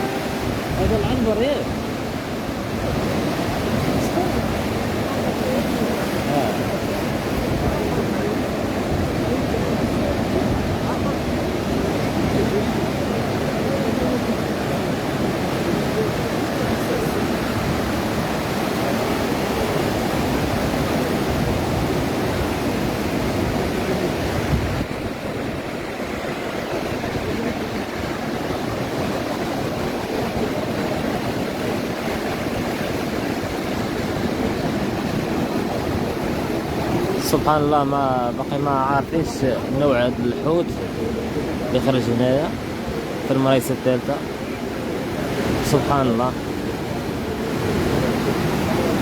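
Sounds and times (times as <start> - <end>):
wind on microphone: 0.0 - 37.5
surf rushing: 0.0 - 49.0.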